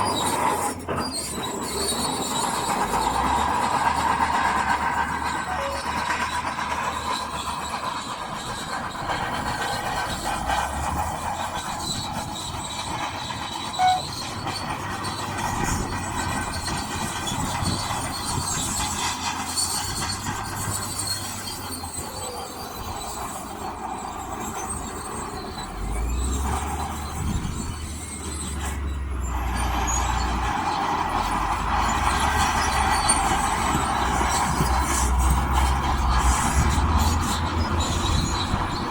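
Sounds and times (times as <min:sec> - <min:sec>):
diesel engine running: 0:00.0 - 0:38.9
steel tracks squealing and clattering: 0:00.0 - 0:38.9
loud squeak: 0:05.2 - 0:11.1, 0:11.8 - 0:18.9, 0:31.1 - 0:38.9.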